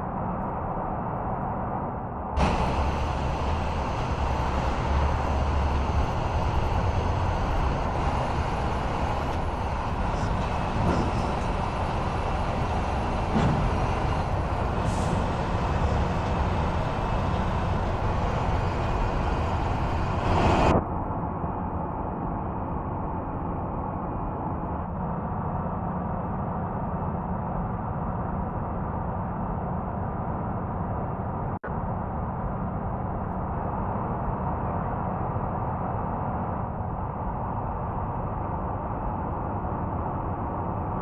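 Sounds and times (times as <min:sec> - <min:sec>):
truck engine rumble: 0:02.4 - 0:20.8
road noise: 0:02.4 - 0:20.9.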